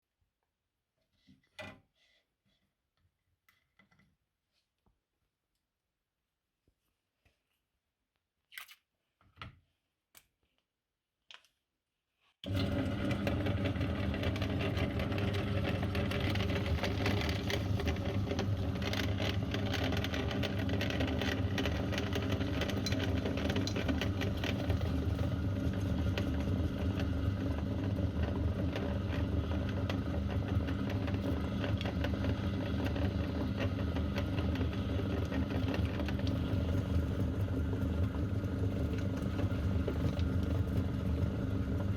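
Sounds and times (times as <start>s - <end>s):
meat grinder grinding candies: 12.5s - 41.9s.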